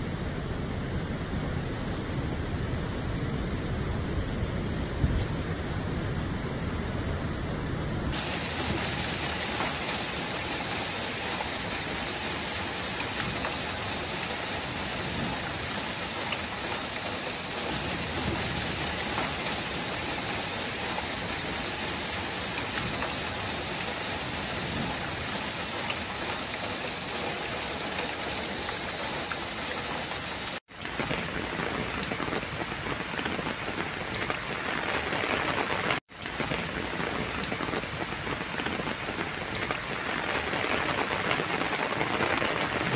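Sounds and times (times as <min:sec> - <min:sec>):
heavy rain falling: 0:08.1 - 0:42.9.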